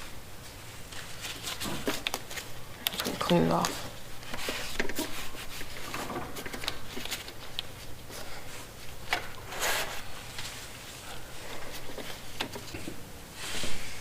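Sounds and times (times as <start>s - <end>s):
rubbing and wiping swishes: 3.7s - 6.0s.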